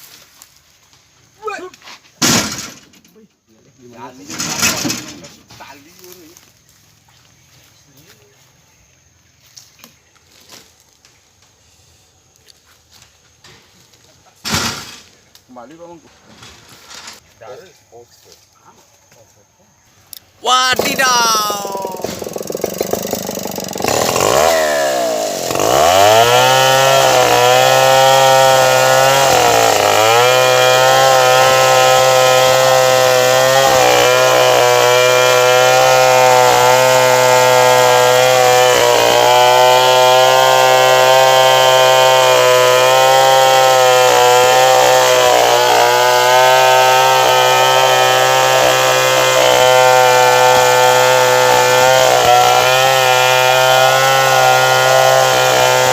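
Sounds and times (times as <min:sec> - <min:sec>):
chainsaw cutting wood: 0:04.2 - 0:05.4, 0:14.5 - 0:15.1, 0:20.2 - 0:55.9.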